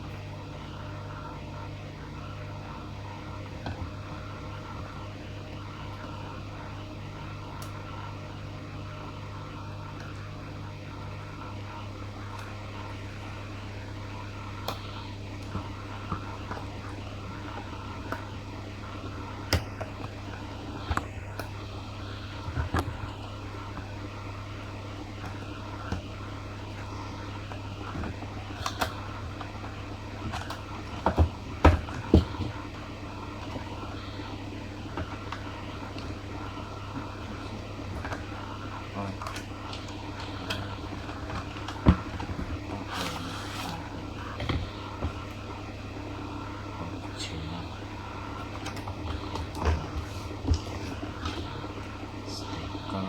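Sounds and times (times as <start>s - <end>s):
low motor hum: 0.0s - 53.0s.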